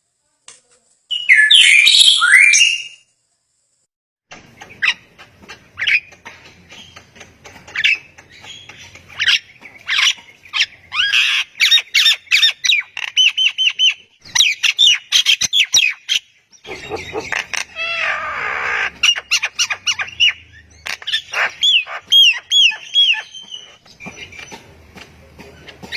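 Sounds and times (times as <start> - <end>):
songbird chirping and whistling: 1.1 - 3.0, 7.7 - 18.0, 19.0 - 24.6.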